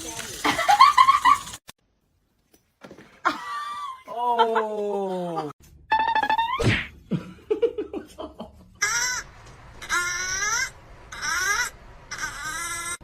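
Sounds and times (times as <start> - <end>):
animal calling: 8.8 - 13.0.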